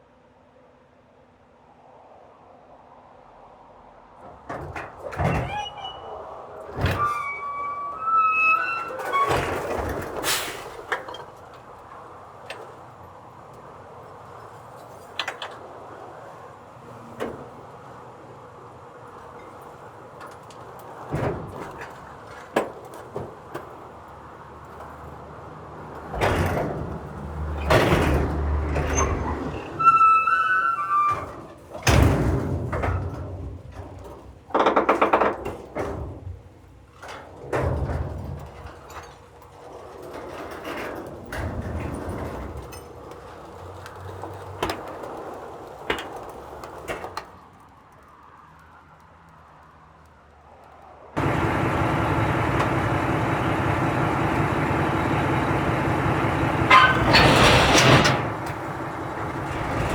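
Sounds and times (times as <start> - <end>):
garbage truck engine drone: 23.9 - 29.8, 51.2 - 59.9
loud bangs and clanks: 51.2 - 59.9.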